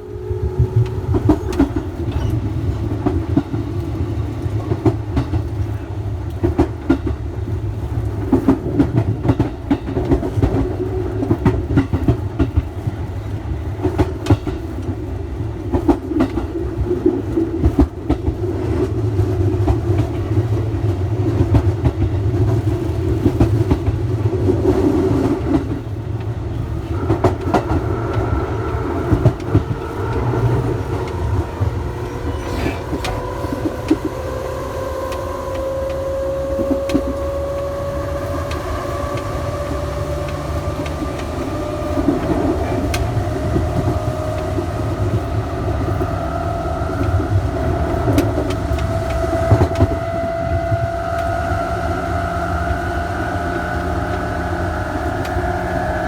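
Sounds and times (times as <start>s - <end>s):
electric train motors whining: 0.0s - 4.8s, 25.4s - 56.0s
wheels rumbling on rail: 0.0s - 56.0s.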